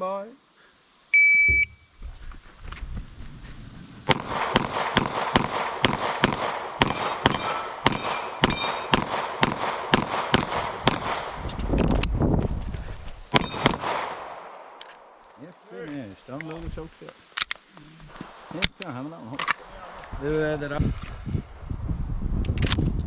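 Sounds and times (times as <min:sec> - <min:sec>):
shot timer beep: 0:01.2 - 0:01.9
pistol shots: 0:04.1 - 0:11.4, 0:13.3 - 0:14.8
steel targets ringing: 0:06.8 - 0:09.0, 0:13.4 - 0:13.8.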